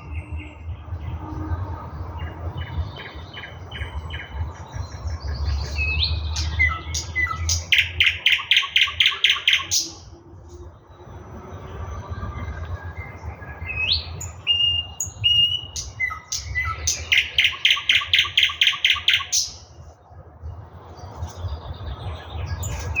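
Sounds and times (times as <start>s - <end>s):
nightingale singing: 2.2s - 10.7s, 12.4s - 19.8s.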